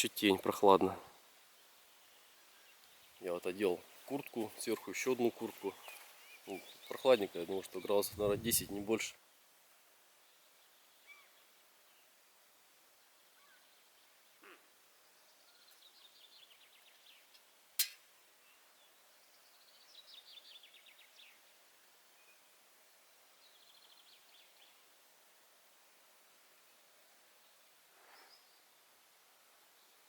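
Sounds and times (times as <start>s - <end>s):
songbird singing: 1.5s - 9.1s, 10.2s - 12.2s, 13.0s - 22.6s, 23.4s - 24.8s
sharp click: 17.8s - 18.0s.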